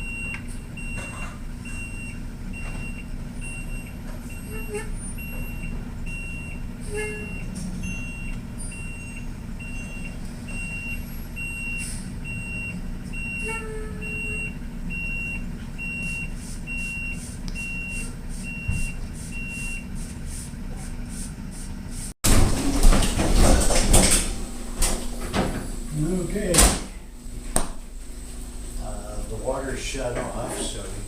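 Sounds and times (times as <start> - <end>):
reversing alarm beeping: 0.0 - 19.9
truck engine running: 0.0 - 31.0.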